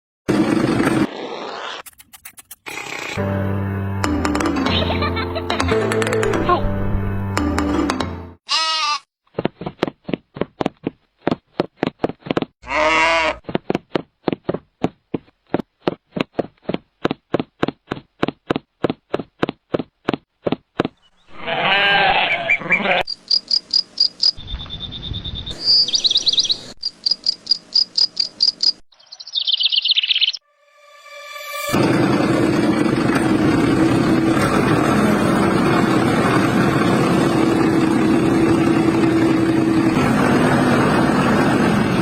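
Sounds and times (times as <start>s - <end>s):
livestock bleating: 8.5s - 9.1s, 12.6s - 13.4s, 21.3s - 23.1s
high bird-like chirping: 23.1s - 30.4s.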